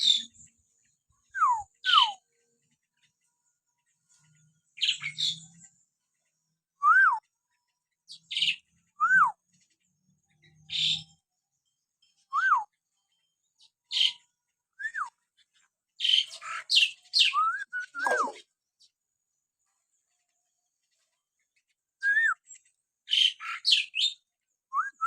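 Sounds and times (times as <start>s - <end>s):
myna whistling: 17.3s - 18.4s, 22.0s - 22.4s.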